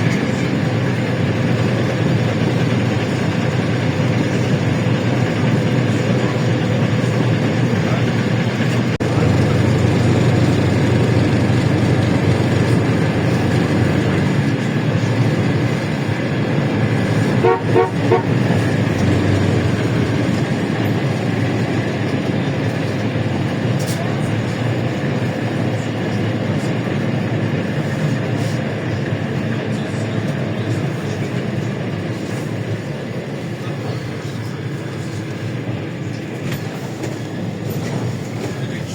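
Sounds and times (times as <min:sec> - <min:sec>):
road noise: 0:00.0 - 0:33.3
bus engine drone: 0:00.0 - 0:38.9
vehicle horn toots: 0:09.0 - 0:14.5, 0:17.0 - 0:20.5.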